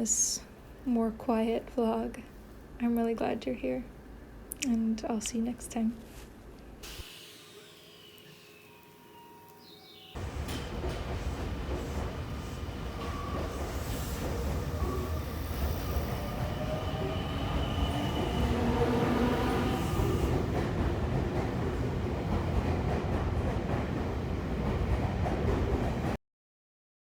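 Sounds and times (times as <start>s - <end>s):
train rumbling: 10.2s - 26.2s.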